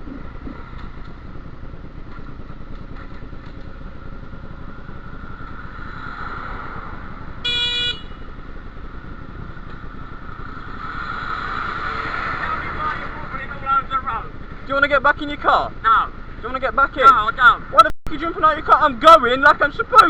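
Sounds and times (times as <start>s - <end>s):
motorcycle engine running: 0.0s - 20.0s
vehicle horn blast: 7.4s - 8.3s.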